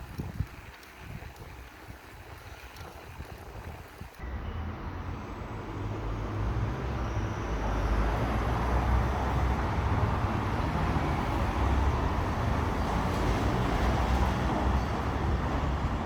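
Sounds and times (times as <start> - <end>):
rushing wind: 0.0 - 4.2
bicycle road noise: 0.0 - 16.0.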